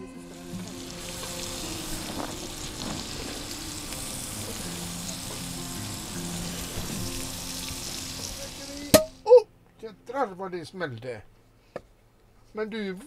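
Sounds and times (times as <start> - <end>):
food sizzling on a griddle: 0.0 - 9.2.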